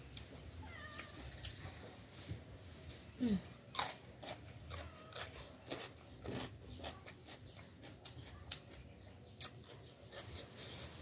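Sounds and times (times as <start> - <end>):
crunchy chewing: 2.8 - 11.0.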